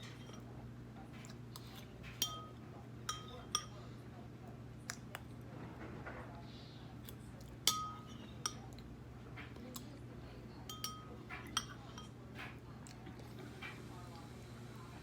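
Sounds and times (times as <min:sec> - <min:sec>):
metal spoon clinking ceramic bowl: 0:02.1 - 0:03.8, 0:07.6 - 0:08.7, 0:10.6 - 0:12.2.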